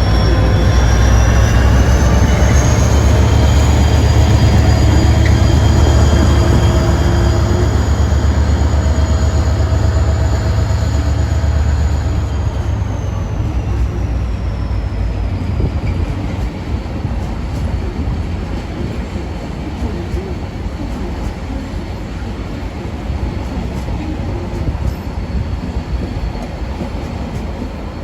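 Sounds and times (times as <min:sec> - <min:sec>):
train locomotive rumble: 0:00.0 - 0:28.0.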